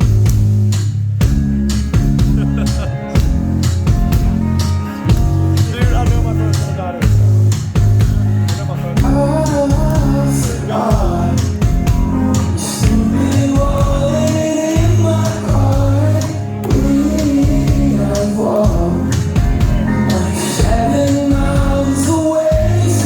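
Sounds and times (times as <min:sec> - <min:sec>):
live rock band playing: 0:00.0 - 0:23.0
man singing: 0:08.9 - 0:23.0.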